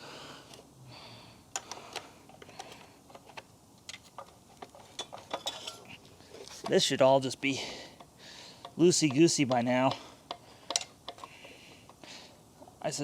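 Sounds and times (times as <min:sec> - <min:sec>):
hand tool clicking and tapping: 0:08.0 - 0:11.9.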